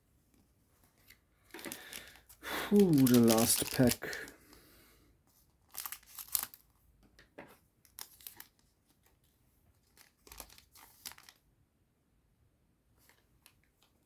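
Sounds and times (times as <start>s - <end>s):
foil wrapper tearing and crinkling: 1.6s - 4.6s, 5.6s - 6.7s, 7.9s - 8.6s, 9.8s - 11.4s.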